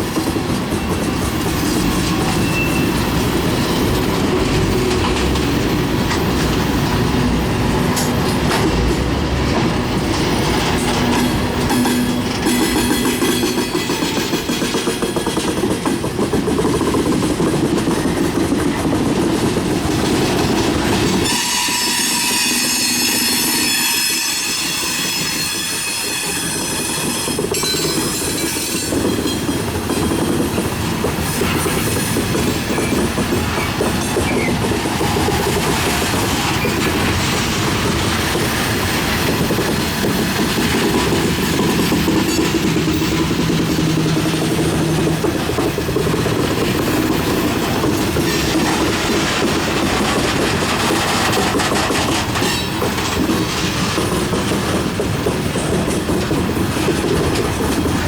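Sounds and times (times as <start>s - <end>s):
freight train cars rolling: 0.0s - 58.0s
high wheel squeal: 0.8s - 4.0s, 21.2s - 30.4s, 31.2s - 37.3s.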